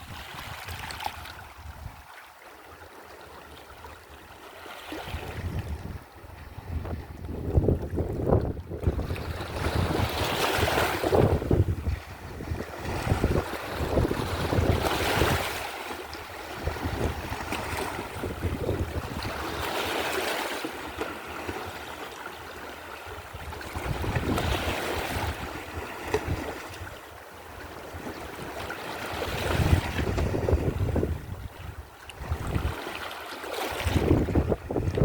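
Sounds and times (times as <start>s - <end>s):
wind rumbling on microphone: 0.0s - 2.1s, 5.0s - 20.1s, 23.2s - 27.0s, 27.6s - 33.0s, 33.7s - 35.0s
sea waves washing in: 4.2s - 22.2s, 27.6s - 35.0s.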